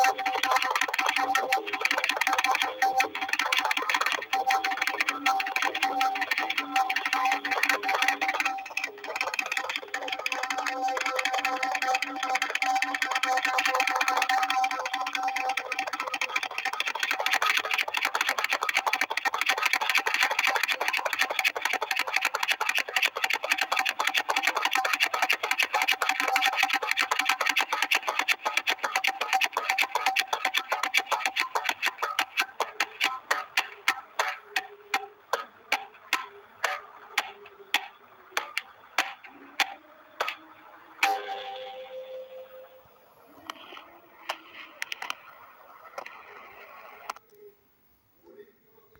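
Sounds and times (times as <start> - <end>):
steam engine chuffing: 0.0 - 35.1.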